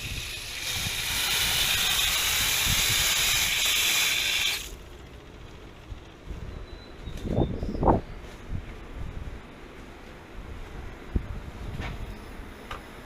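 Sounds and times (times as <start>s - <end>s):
loud hiss of rushing flow: 0.0s - 4.8s.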